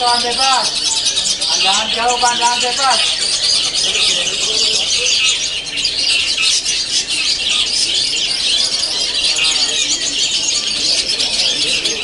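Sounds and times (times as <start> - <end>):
birds chirping and trilling: 0.0 - 12.0.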